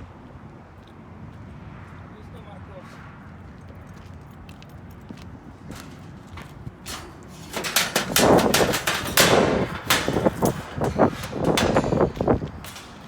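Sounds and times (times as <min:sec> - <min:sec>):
rapid knocks and clatters: 0:05.7 - 0:13.0.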